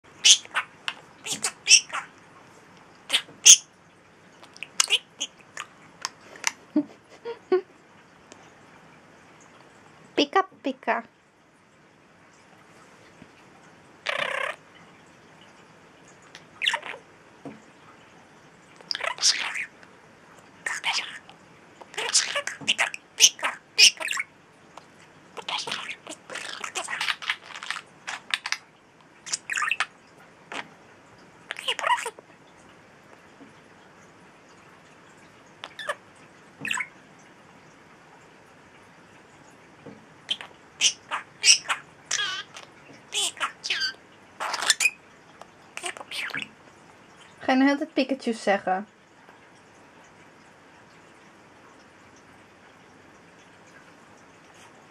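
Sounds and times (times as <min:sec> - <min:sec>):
budgie calling: 0:00.2 - 0:02.1, 0:03.1 - 0:03.7, 0:04.4 - 0:05.7, 0:14.0 - 0:14.6, 0:16.3 - 0:17.0, 0:18.8 - 0:19.8, 0:20.6 - 0:24.3, 0:25.4 - 0:28.6, 0:29.2 - 0:30.6, 0:31.5 - 0:32.2, 0:40.3 - 0:45.0, 0:45.8 - 0:46.5.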